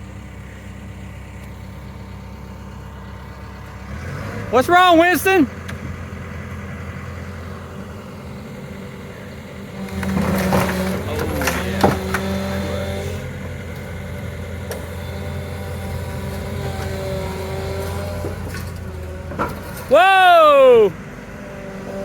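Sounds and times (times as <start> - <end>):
excavator diesel engine: 0.0 - 22.0
metal cracking: 9.8 - 12.7.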